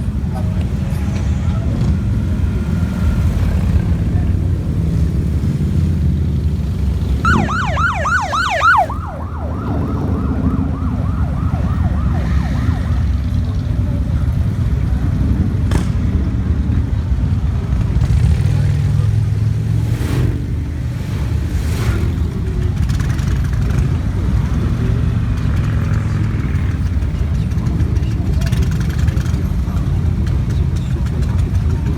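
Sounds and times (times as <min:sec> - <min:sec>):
motorcycle engines rumbling: 0:00.0 - 0:31.9
siren yelping: 0:07.2 - 0:13.8.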